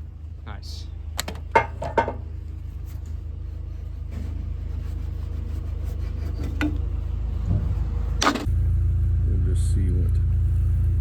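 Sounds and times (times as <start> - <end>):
skid steer engine running: 1.0 - 11.0.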